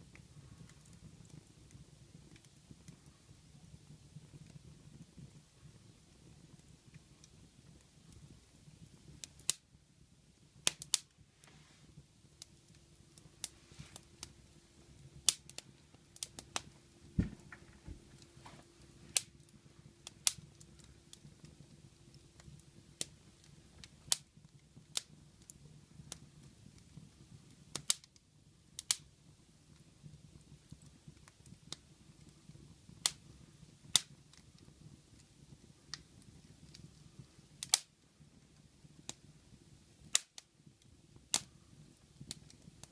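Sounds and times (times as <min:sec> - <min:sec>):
wood fire crackling: 0:00.0 - 0:42.9
low steady rumble: 0:11.2 - 0:22.1.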